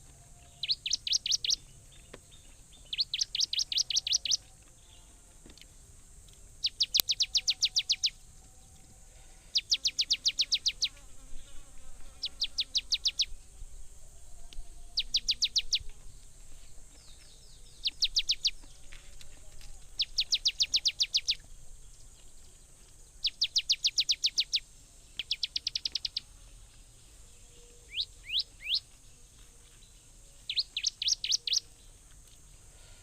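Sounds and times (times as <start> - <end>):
faint high insect buzz: 0.0 - 33.0
songbird singing sharp high notes: 27.9 - 28.8.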